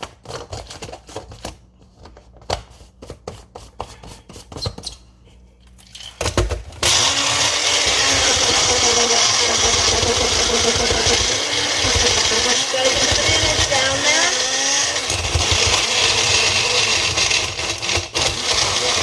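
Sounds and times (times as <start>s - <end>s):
blender motor blending ice: 6.8s - 19.0s.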